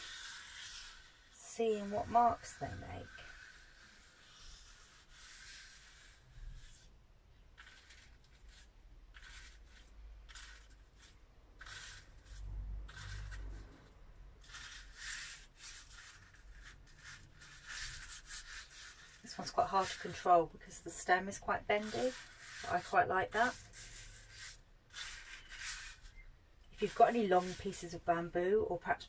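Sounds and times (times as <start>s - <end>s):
leaf brush swishing on paper: 0.0s - 6.9s, 7.6s - 26.2s, 26.8s - 28.8s.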